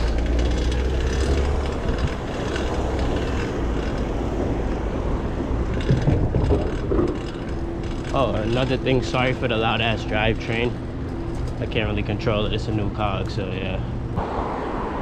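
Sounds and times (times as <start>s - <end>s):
bicycle chain whirring: 0.0s - 4.8s, 5.6s - 12.6s.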